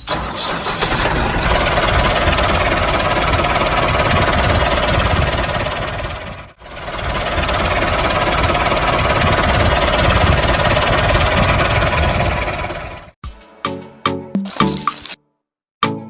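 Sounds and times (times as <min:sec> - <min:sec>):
music notes: 0:13.2 - 0:15.2.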